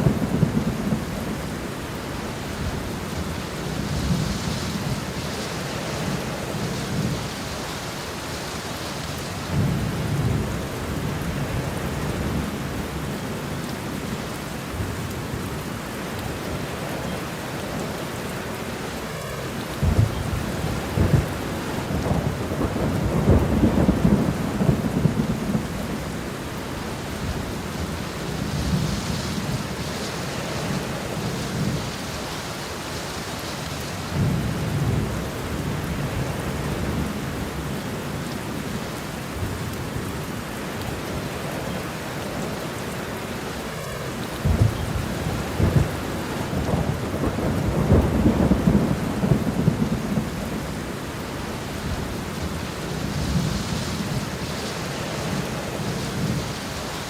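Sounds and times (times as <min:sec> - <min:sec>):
steady rain: 0:00.0 - 0:57.0
thunder rumbling: 0:16.3 - 0:40.3, 0:41.1 - 0:57.0.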